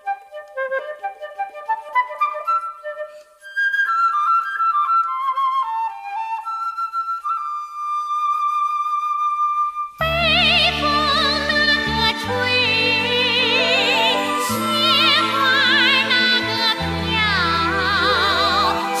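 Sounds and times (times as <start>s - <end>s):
solo flute melody: 0.0s - 19.0s
orchestral accompaniment: 10.1s - 19.0s.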